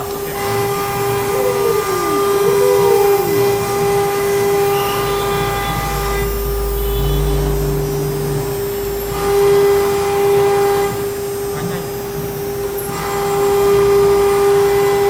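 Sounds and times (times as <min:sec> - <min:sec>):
deep low hum: 0:01.0 - 0:10.3
short falling whines: 0:01.1 - 0:09.9.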